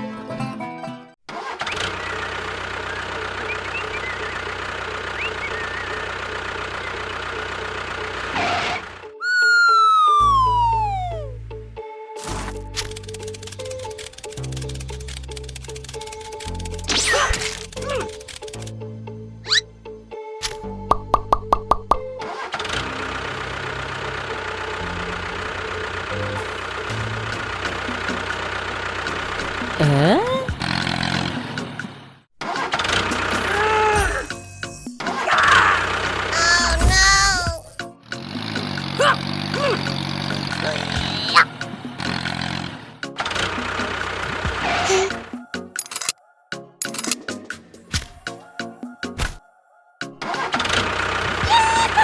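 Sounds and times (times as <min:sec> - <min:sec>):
engine running: 0:01.6 - 0:09.2, 0:12.2 - 0:18.8, 0:21.8 - 0:46.1, 0:50.4 - 0:52.0
loud falling tone: 0:09.2 - 0:11.4.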